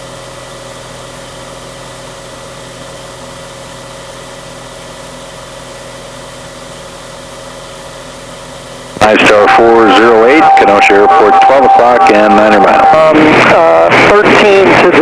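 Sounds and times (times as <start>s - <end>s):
airplane engine droning: 8.9s - 14.2s.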